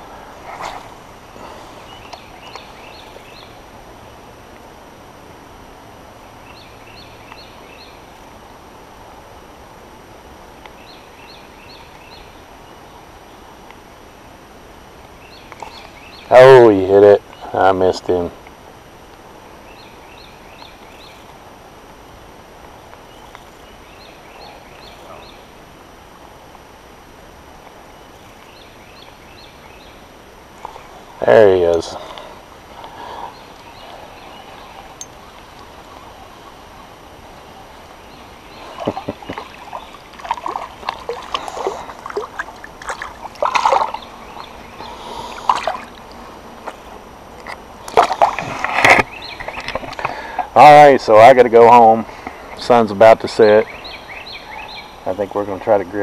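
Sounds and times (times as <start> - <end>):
steady outdoor hiss: 0.0 - 56.0
water splashing and sloshing: 32.0 - 50.6.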